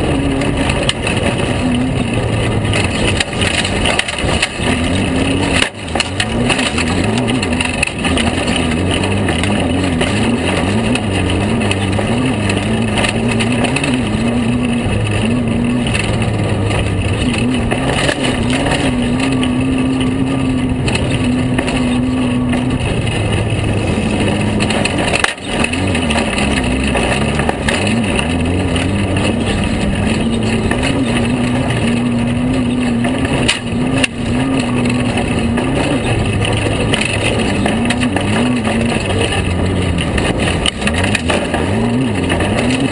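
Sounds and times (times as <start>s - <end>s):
constant rush of noise: 0.0s - 42.9s
engine running hard: 0.0s - 42.9s.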